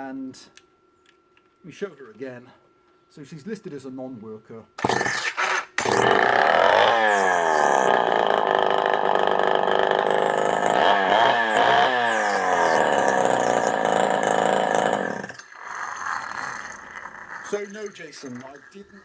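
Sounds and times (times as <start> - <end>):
chainsaw engine revving: 4.8 - 19.0.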